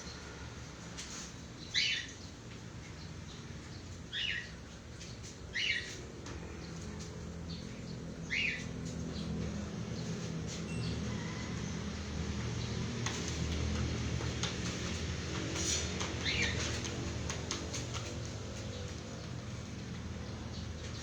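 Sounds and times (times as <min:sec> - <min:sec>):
low background hum: 0:00.0 - 0:21.0
bird chirping: 0:03.0 - 0:04.6, 0:05.5 - 0:06.0, 0:07.5 - 0:09.3.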